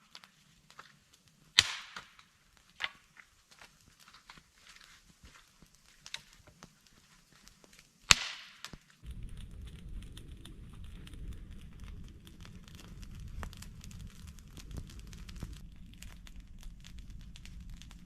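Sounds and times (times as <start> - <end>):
wood fire crackling: 0.0 - 18.0
sharp crack: 1.5 - 3.2, 8.0 - 18.0
steady low rumble: 9.0 - 18.0.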